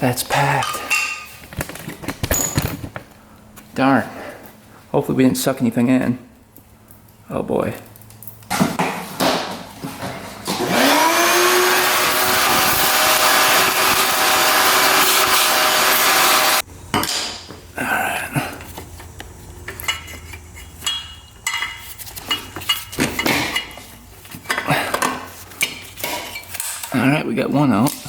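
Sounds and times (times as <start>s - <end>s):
electric motor whining: 10.5s - 16.6s.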